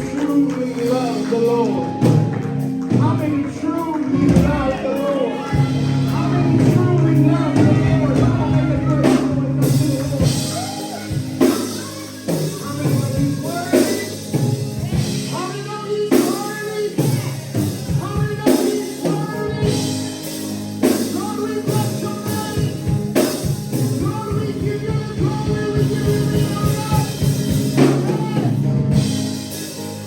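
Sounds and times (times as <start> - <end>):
voices singing: 0.0 - 29.1
band playing church music: 0.0 - 30.0
sustained low chords: 1.7 - 13.6
drum kit hits: 5.6 - 30.0.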